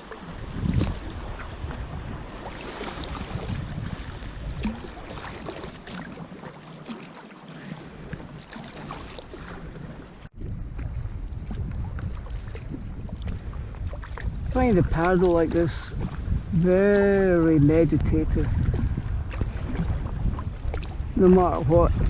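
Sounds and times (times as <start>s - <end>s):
wind buffeting microphone: 0.0s - 6.2s, 7.8s - 22.0s
paddle splashes: 0.0s - 22.0s
water washing against hull: 0.0s - 22.0s.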